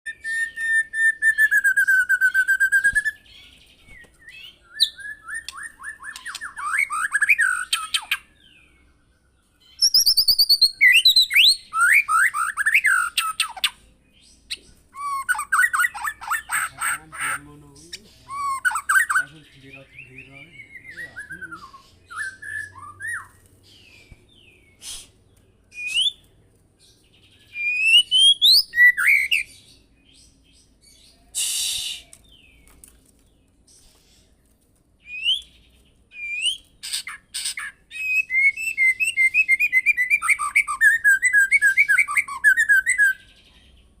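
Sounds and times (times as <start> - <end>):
bird singing whistled phrases: 0.1 - 3.3, 3.9 - 8.6, 9.7 - 13.7, 14.5 - 16.7, 18.2 - 23.4, 25.7 - 26.2, 27.5 - 29.5, 31.3 - 32.5, 35.0 - 43.2.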